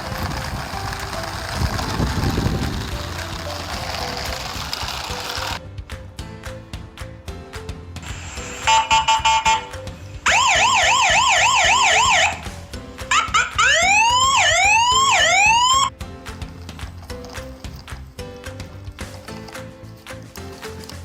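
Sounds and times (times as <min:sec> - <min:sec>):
soft background music: 0:00.0 - 0:21.0
electronic emergency siren: 0:08.5 - 0:12.5, 0:13.1 - 0:15.9.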